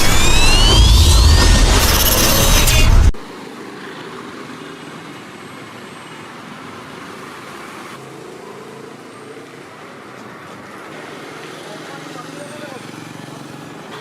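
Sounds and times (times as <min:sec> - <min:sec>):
loud intro sound: 0:00.0 - 0:03.3
distant street traffic: 0:03.2 - 0:14.0.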